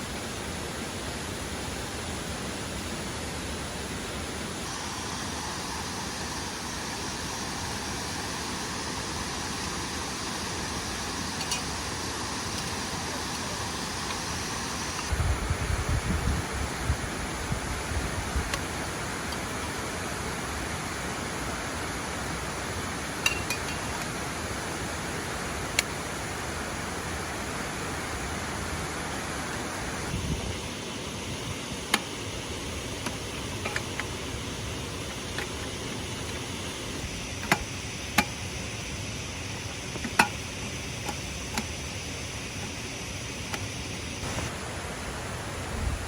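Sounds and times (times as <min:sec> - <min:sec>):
sharp clicks and knocks: 0:33.0 - 0:34.2, 0:37.4 - 0:38.4.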